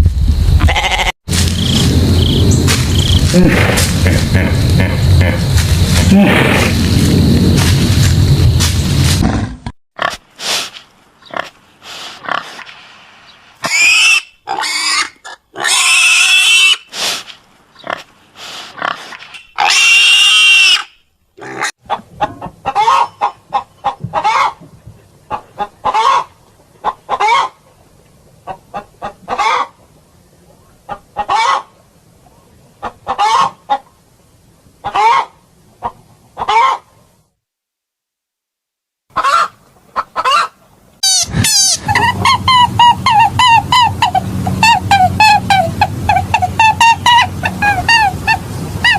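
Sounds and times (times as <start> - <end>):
pig short calls: 3.2 - 6.8
pigs grunting and squealing: 3.2 - 6.8, 13.7 - 16.8, 18.8 - 22.9.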